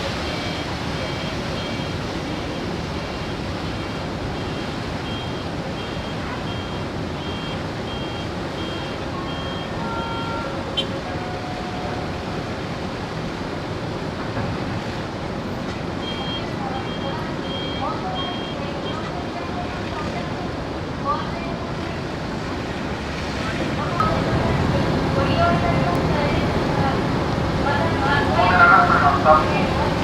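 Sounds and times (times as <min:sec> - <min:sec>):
vehicle and machinery noise: 0:00.0 - 0:30.0
electronic warning beeper: 0:00.1 - 0:10.4, 0:16.0 - 0:19.1, 0:24.0 - 0:26.7.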